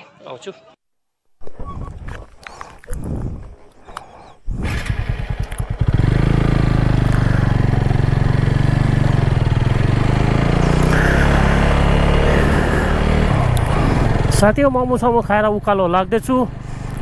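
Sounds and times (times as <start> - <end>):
wind rush on microphone: 1.4 - 3.7, 4.4 - 5.8
motorcycle engine: 4.5 - 17.0.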